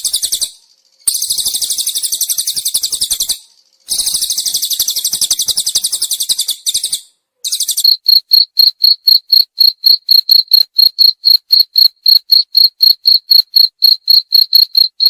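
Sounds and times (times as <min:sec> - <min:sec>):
bird singing high trills: 0:00.0 - 0:07.8
cricket chirping: 0:00.0 - 0:15.0.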